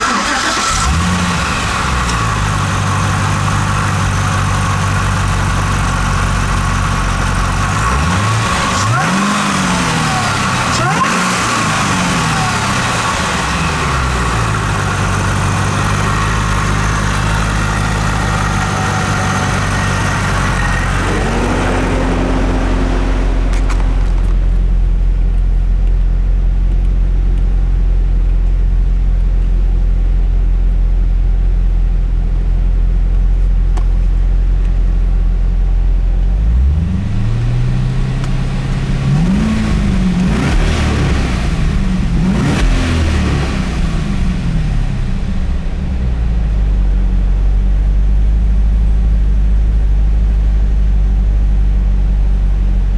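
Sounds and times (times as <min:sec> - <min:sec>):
engine revving: 0:00.0 - 0:24.6, 0:36.4 - 0:46.2
car engine idling: 0:00.0 - 0:30.7.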